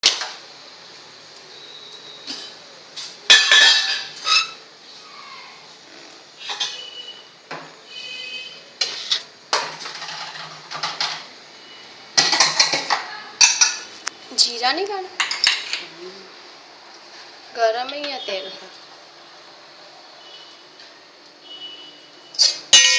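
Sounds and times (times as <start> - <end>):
metal cookware clanking: 2.2 - 2.7, 3.3 - 4.6, 6.4 - 7.0, 8.8 - 11.3, 12.2 - 14.0, 15.2 - 15.9, 22.4 - 22.9.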